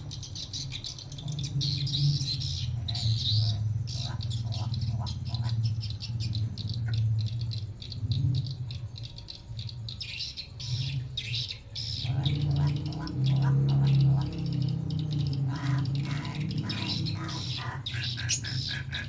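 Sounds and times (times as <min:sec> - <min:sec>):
crow calling: 0:00.0 - 0:08.0, 0:10.0 - 0:19.0.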